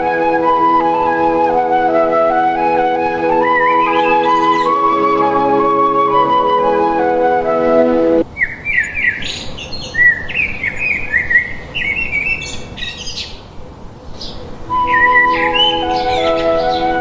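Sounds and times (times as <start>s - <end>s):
flute music: 0.0s - 8.2s, 14.7s - 17.0s
birds chirping: 0.0s - 13.5s, 14.1s - 17.0s.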